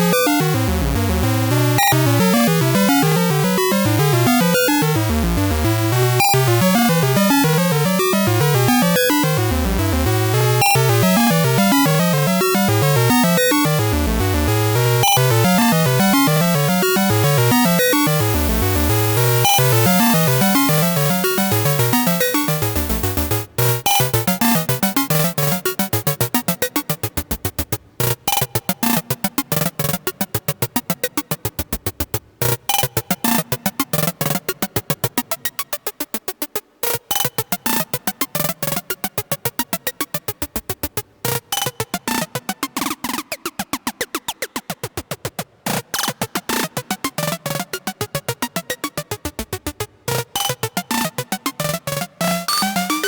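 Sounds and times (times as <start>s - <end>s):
synthesizer plucky note sequence: 52.5s - 53.0s.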